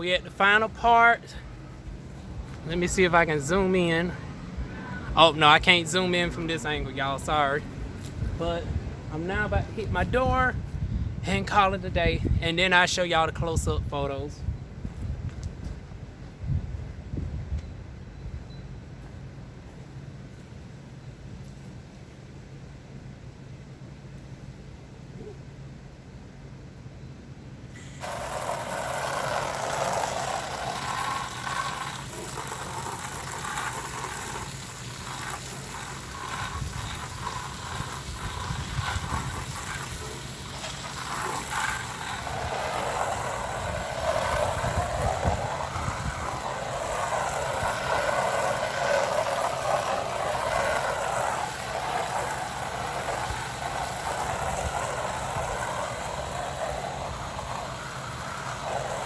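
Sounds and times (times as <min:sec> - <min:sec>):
water spray hissing against siding: 0:27.8 - 0:59.0.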